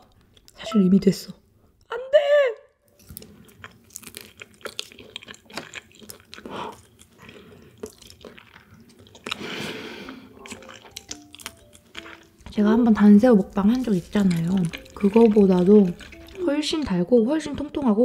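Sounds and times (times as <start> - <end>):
faint background music: 0.6 - 2.6, 9.0 - 18.0
close-up chewing with mouth clicks: 2.9 - 17.0.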